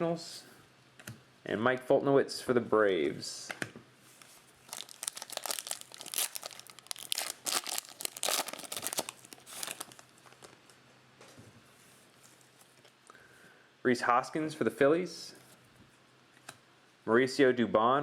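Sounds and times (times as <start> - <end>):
plastic wrapper tearing and crinkling: 4.2 - 10.7.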